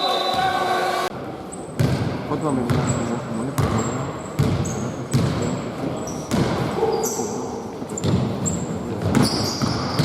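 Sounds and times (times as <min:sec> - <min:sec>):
basketball bouncing on hard floor: 0:01.8 - 0:03.0, 0:03.6 - 0:05.6, 0:06.3 - 0:06.6, 0:08.0 - 0:08.4, 0:09.0 - 0:10.0.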